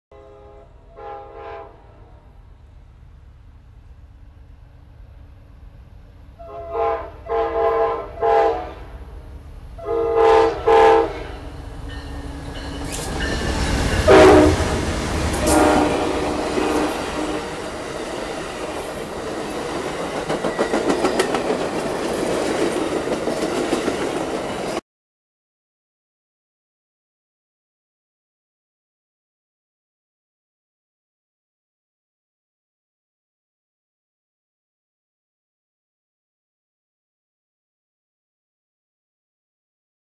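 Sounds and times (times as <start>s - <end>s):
train horn blasts: 0.1s - 2.4s, 6.4s - 9.1s, 9.8s - 11.6s, 12.6s - 17.9s
locomotive passing loudly: 7.6s - 24.8s
wheels clattering over rail joints: 16.5s - 24.8s.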